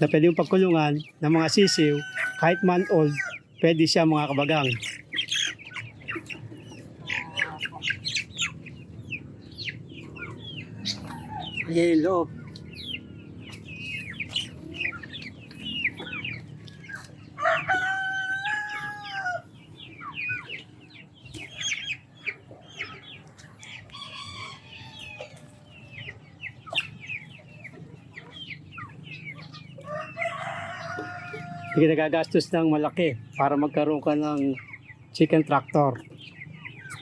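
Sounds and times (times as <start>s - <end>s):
chickens clucking and chirping: 0.0s - 37.0s
rooster crowing: 1.5s - 3.3s, 17.4s - 19.5s, 29.9s - 31.7s.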